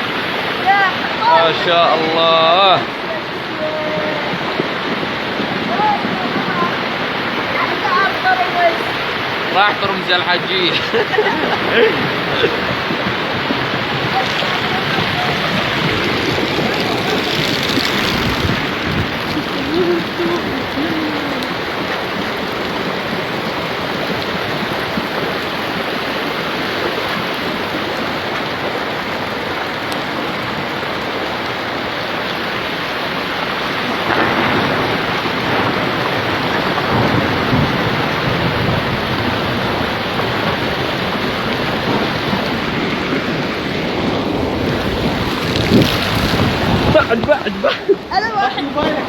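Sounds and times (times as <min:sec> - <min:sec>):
heavy rain pouring: 0:00.0 - 0:49.0
deep rumble: 0:11.1 - 0:25.1.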